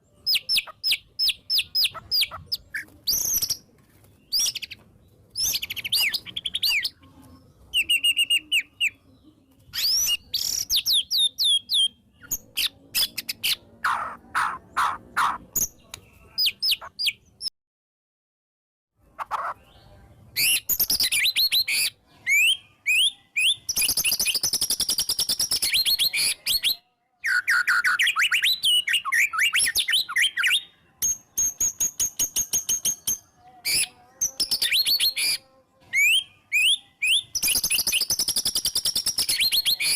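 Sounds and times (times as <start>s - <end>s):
bird singing whistles and trills: 7.7s - 9.0s, 9.7s - 13.6s, 20.4s - 35.4s, 36.0s - 39.9s.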